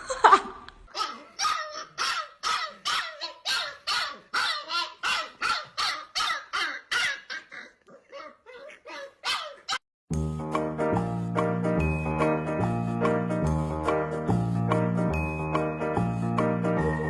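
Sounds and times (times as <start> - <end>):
dog barking: 0.9 - 7.6, 8.9 - 9.8.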